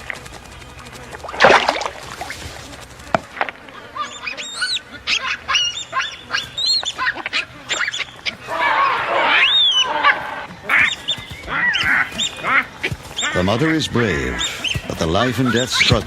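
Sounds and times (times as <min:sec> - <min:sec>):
baboons screaming in alarm: 0:03.3 - 0:16.0.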